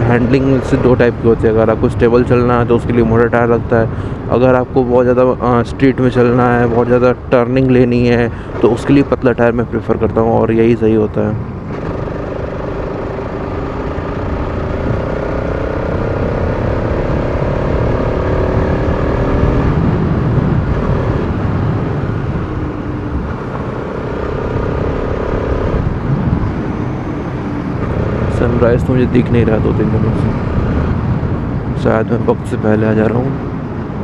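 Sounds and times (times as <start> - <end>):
wind and road noise: 0.0 - 34.0
motorcycle engine running: 11.4 - 31.3.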